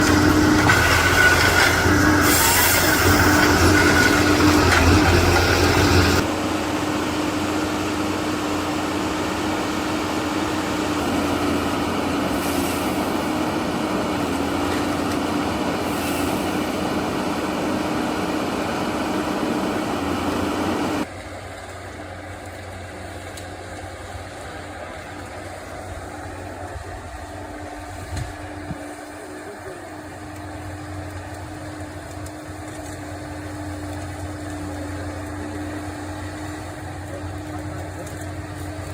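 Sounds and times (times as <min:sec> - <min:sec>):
machine engine running: 0:00.0 - 0:21.1.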